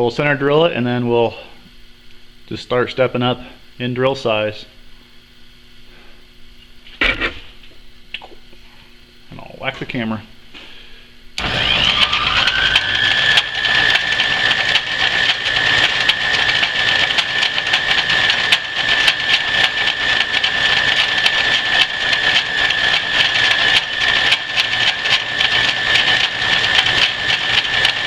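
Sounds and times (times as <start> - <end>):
lathe whining and humming: 11.4 - 28.0.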